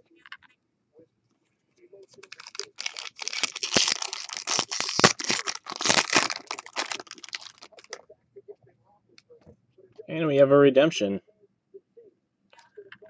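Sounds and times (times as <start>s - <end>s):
wrapper crinkling: 2.2s - 8.0s.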